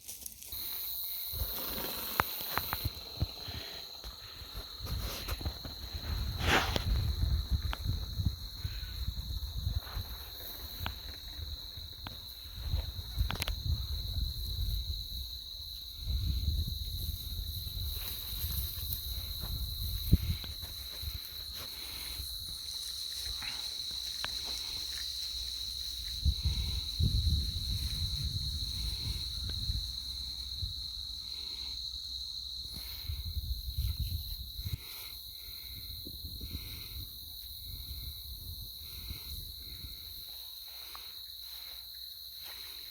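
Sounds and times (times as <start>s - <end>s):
insects droning: 0.0s - 42.9s
wind rumbling on microphone: 1.3s - 22.6s, 25.7s - 31.5s, 32.8s - 40.3s.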